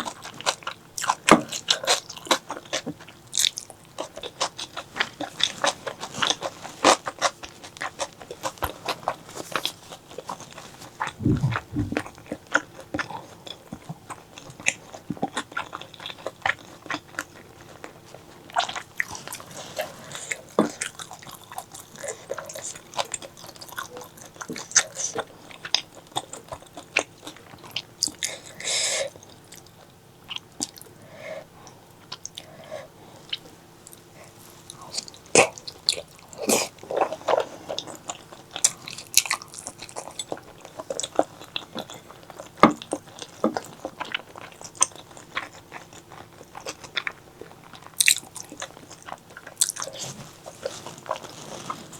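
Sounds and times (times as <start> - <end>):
close-miked chewing: 0.0 - 51.9
low thump: 11.2 - 12.1.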